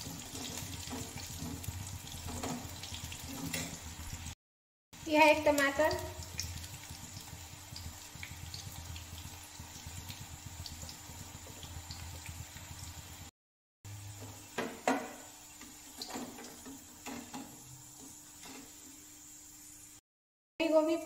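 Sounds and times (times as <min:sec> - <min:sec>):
fritters sizzling in hot oil: 0:00.0 - 0:04.4, 0:05.0 - 0:13.3.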